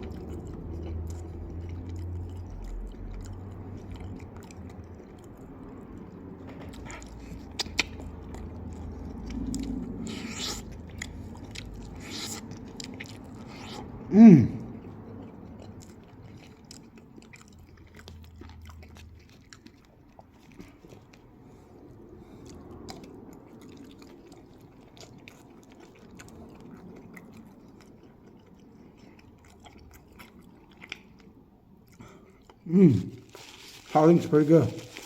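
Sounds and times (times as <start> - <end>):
person chewing crispy chicken: 0.0 - 35.0
mouth clicks: 7.5 - 8.0.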